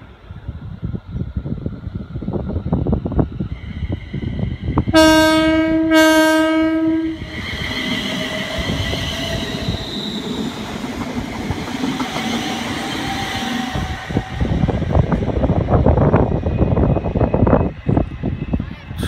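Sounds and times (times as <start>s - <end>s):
train wheels rumbling on rails: 0.0s - 19.0s
train horn: 4.9s - 7.3s
rhythmic rail clicks: 7.2s - 19.0s.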